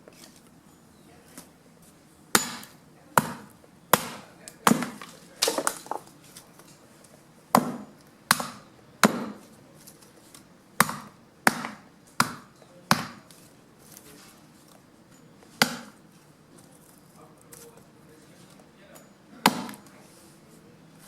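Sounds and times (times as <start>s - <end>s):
blade chopping branches: 2.4s - 6.5s.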